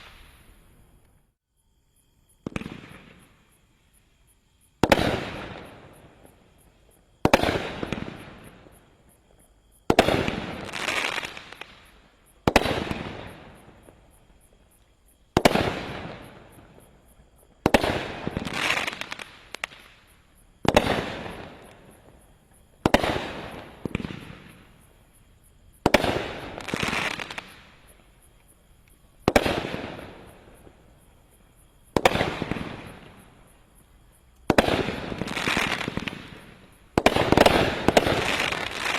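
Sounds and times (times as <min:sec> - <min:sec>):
firework shots: 0:00.0 - 0:00.5, 0:02.4 - 0:03.4, 0:04.8 - 0:06.2, 0:07.2 - 0:08.8, 0:09.9 - 0:13.9, 0:15.4 - 0:16.8, 0:17.6 - 0:22.1, 0:22.8 - 0:24.8, 0:25.8 - 0:27.8, 0:29.2 - 0:30.8, 0:31.9 - 0:33.4, 0:34.4 - 0:38.9
crackling firework burst: 0:00.0 - 0:01.0, 0:02.4 - 0:03.7, 0:04.8 - 0:09.0, 0:09.8 - 0:14.6, 0:15.3 - 0:17.0, 0:17.6 - 0:28.1, 0:28.9 - 0:31.0, 0:31.8 - 0:38.9.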